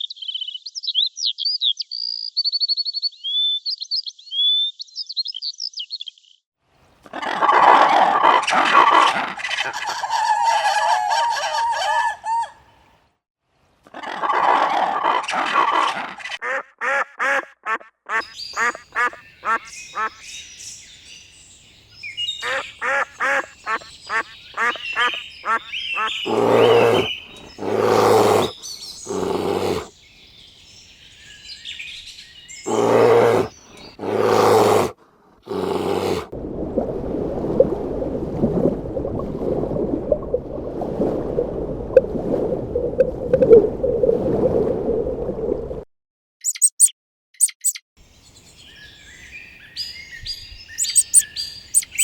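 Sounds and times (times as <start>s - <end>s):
bird chirps: 0.0s - 6.4s, 18.2s - 34.0s, 46.4s - 52.0s
loud animal calls: 22.4s - 29.9s, 32.6s - 34.9s, 35.5s - 36.3s, 50.8s - 52.0s.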